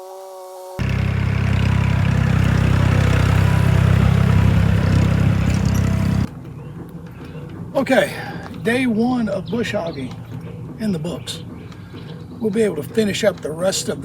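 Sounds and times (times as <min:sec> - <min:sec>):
tractor engine droning: 0:00.8 - 0:06.3.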